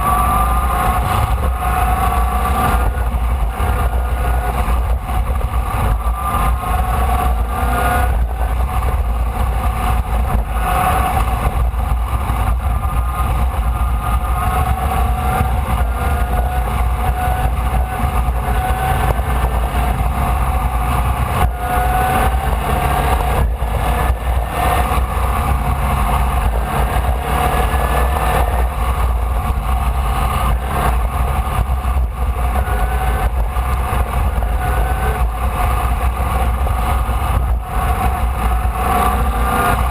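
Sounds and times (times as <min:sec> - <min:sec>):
race car engine revving: 0:00.0 - 0:39.9
wind and road noise: 0:00.0 - 0:39.9.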